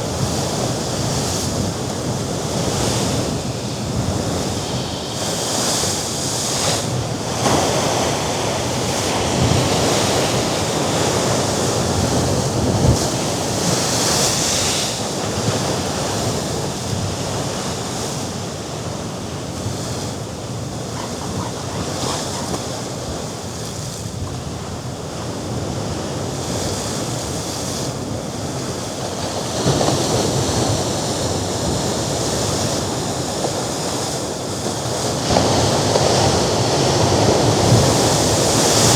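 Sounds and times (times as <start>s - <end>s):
wind gusting on microphone: 0.0s - 27.4s
sea waves breaking on rocks: 0.0s - 38.9s.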